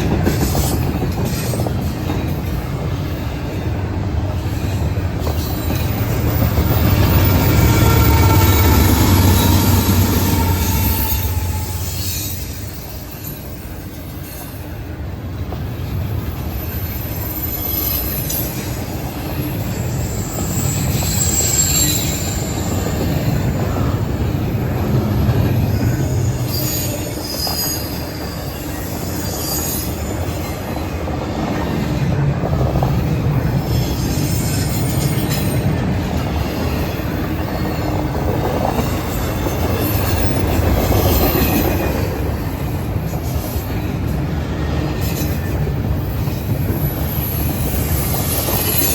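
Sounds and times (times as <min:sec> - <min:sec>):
freight train cars rumbling: 0:00.0 - 0:48.9
high-pitched wheel squeals: 0:05.3 - 0:13.7, 0:19.7 - 0:24.0, 0:26.2 - 0:30.8.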